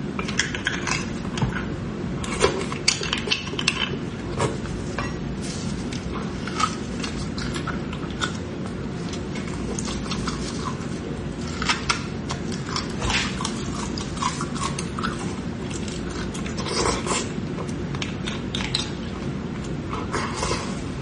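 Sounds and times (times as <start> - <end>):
steady low hum: 0.0 - 21.0
chewing and biting: 5.8 - 20.8.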